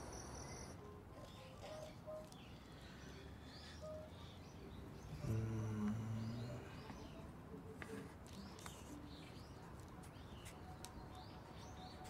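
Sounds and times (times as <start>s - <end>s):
low steady held tone: 0.0s - 0.8s
small birds chirping: 0.4s - 12.0s.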